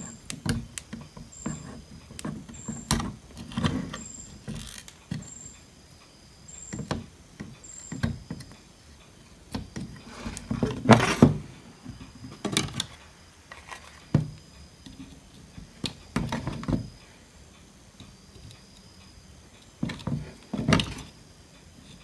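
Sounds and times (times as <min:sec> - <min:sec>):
hand tools clicking and knocking: 0:00.0 - 0:05.6.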